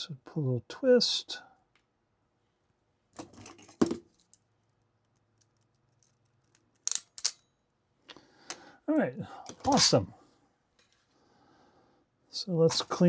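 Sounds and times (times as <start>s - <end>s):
crimping tool metallic clicks: 6.9s - 7.5s.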